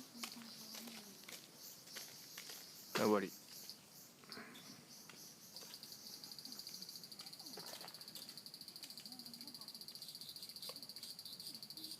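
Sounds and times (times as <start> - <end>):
insect trilling: 0.0 - 11.9.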